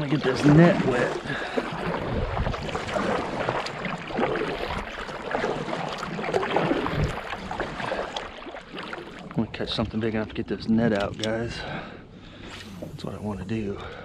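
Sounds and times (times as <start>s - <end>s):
water splashing around kayak: 0.0s - 14.0s
wind on microphone: 1.7s - 3.5s, 6.5s - 7.6s.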